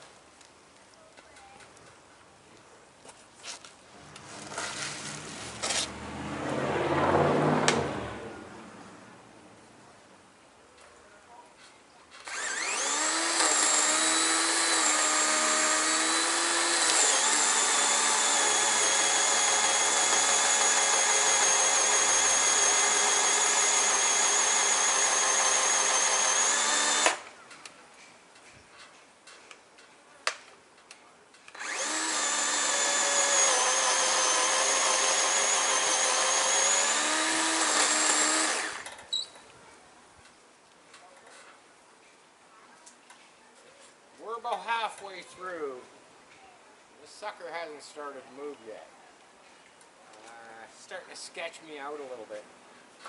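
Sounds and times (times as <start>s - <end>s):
chainsaw cutting wood: 4.2s - 7.9s, 12.2s - 27.4s, 31.5s - 39.2s.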